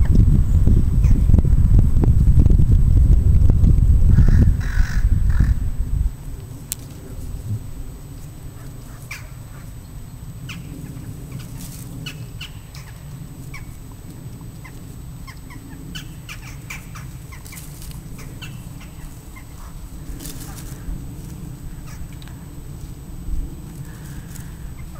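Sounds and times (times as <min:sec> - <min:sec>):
steady low rumble: 0:00.0 - 0:24.9
birds chirping: 0:07.0 - 0:22.8.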